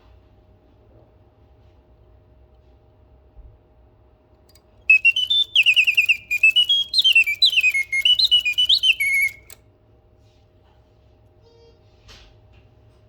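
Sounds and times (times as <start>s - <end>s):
mechanical singing bird whistling: 4.9s - 9.6s.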